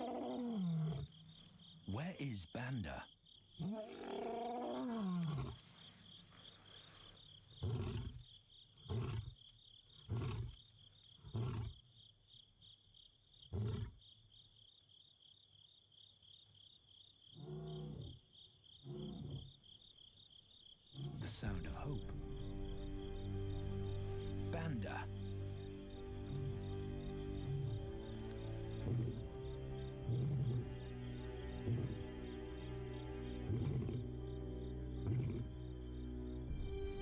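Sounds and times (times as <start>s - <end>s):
lion roaring and grunting: 0.0s - 1.1s, 3.6s - 5.6s, 7.6s - 8.2s, 8.9s - 9.4s, 18.8s - 19.5s, 26.3s - 30.9s, 31.5s - 32.1s, 33.4s - 34.1s, 35.0s - 35.6s.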